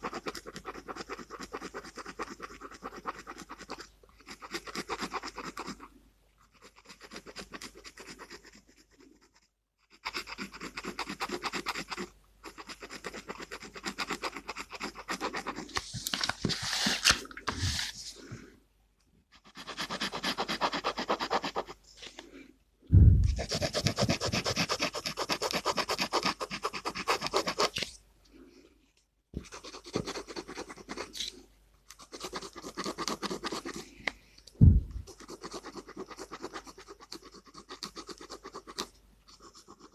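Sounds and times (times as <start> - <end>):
pen scratching on paper: 0.0 - 5.9, 6.5 - 18.0, 19.4 - 21.8, 23.3 - 27.9, 29.4 - 33.9, 35.0 - 39.9.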